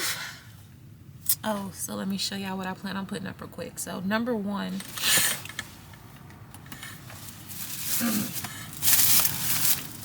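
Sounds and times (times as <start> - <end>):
shopping bags rustling and crinkling: 7.0 - 10.0.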